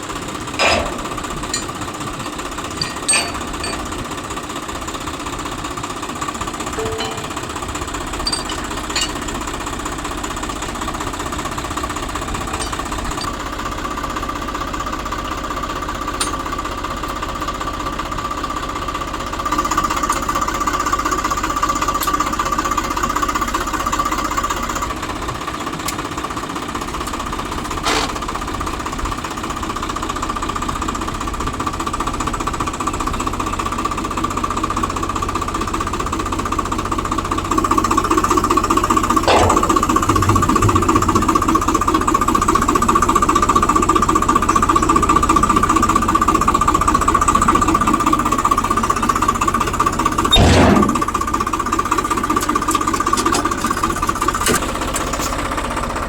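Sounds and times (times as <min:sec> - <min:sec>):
diesel engine knocking clatter: 0:00.0 - 0:56.0
sharp metal clanks: 0:00.6 - 0:04.0, 0:06.8 - 0:09.4, 0:12.4 - 0:13.4, 0:16.2 - 0:16.6, 0:39.1 - 0:41.4, 0:50.3 - 0:51.2.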